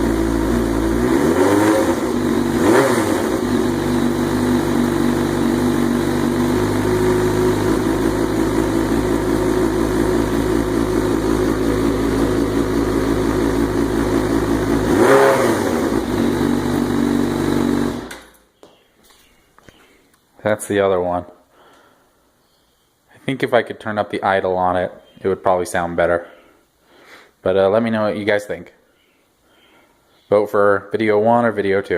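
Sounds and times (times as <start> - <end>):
motorcycle engine idling: 3.2 - 18.1.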